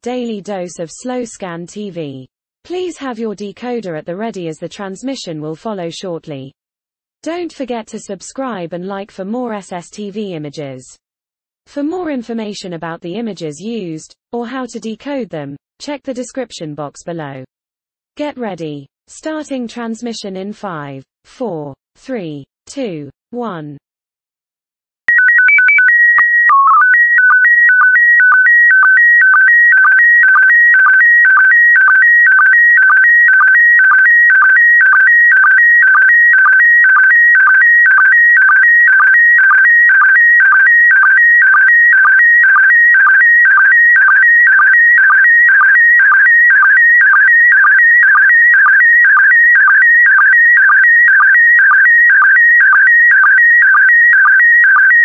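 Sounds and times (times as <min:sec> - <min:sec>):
held calibration tones: 0:25.1 - 0:55.0.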